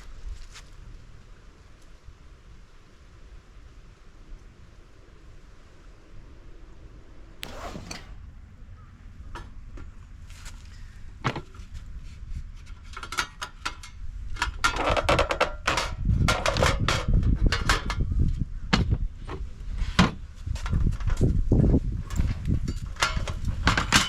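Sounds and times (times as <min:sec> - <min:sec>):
camping gear knocking and clattering: 0:07.4 - 0:08.5.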